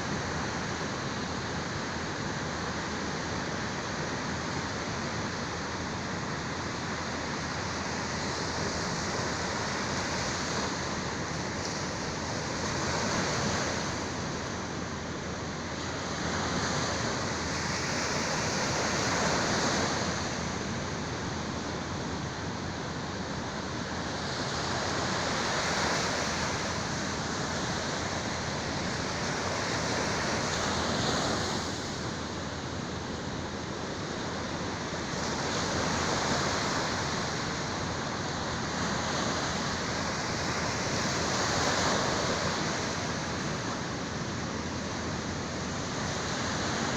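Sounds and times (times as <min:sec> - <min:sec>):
sea waves breaking on shore: 0:00.0 - 0:46.9.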